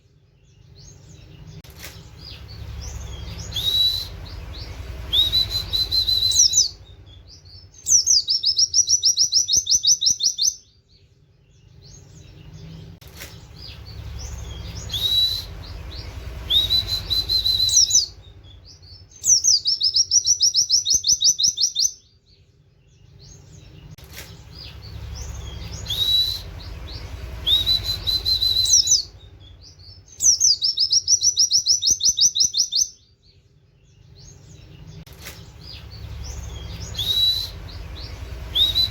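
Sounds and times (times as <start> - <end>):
bird whistling and trilling: 0.8 - 10.7, 11.8 - 22.1, 24.6 - 33.1, 35.6 - 38.9
low rumble: 1.0 - 8.1, 12.0 - 19.1, 23.6 - 30.1, 34.6 - 38.9.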